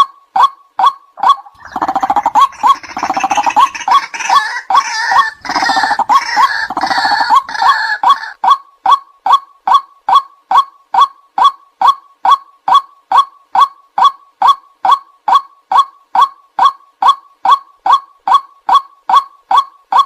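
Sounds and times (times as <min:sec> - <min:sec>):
waterhen kwak calls: 0:00.8 - 0:08.4
croaking and gurgling bird chorus: 0:01.2 - 0:08.4.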